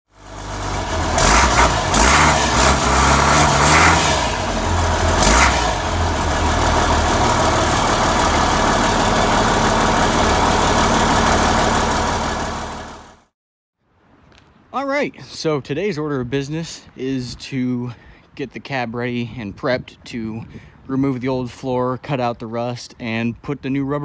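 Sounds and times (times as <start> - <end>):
diesel truck engine revving and idling: 0.2 - 13.2.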